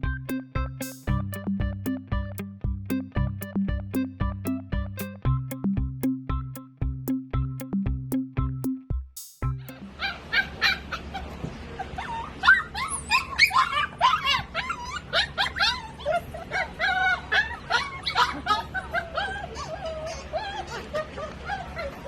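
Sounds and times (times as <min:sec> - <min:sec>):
dog whimpering and yipping: 0:10.0 - 0:11.1, 0:11.8 - 0:22.0.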